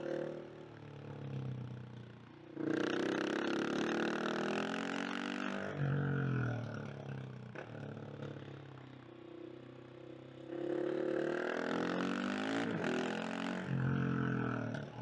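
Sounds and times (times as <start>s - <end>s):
motorcycle engine revving: 2.6s - 6.0s, 10.5s - 15.0s.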